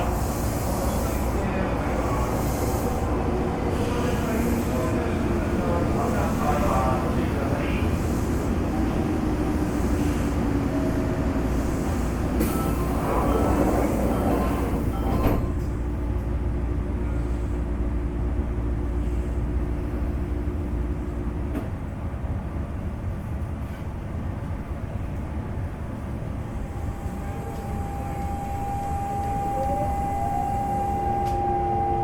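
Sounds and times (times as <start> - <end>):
electric train running noise: 26.3 - 32.0
inverter whine: 26.5 - 32.0.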